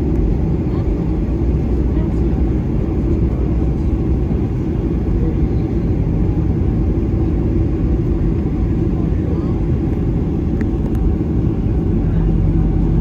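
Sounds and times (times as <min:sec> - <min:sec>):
jet engine cabin rumble: 0:00.0 - 0:13.0.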